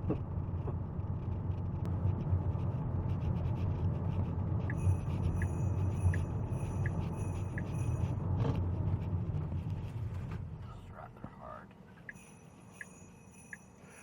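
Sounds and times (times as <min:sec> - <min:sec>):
road and tyre rumble: 0:00.0 - 0:12.1
electronic ticking: 0:04.7 - 0:08.1.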